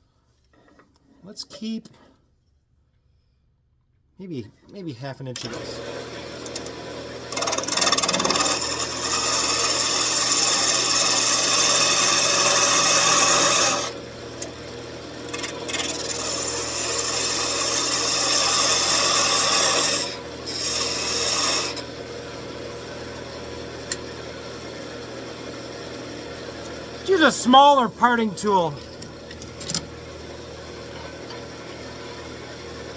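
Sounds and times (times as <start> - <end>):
turning tool cutting wood: 7.3 - 14.0, 15.3 - 21.8.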